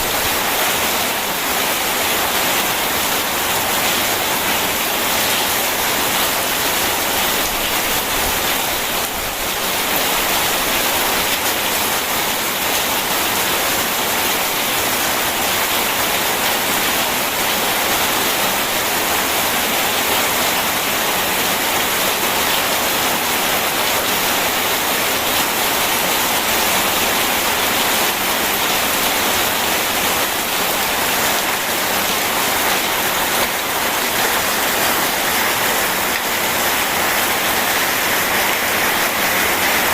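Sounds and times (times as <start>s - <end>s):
heavy rain: 0.0s - 39.9s
rushing river water: 27.2s - 39.9s.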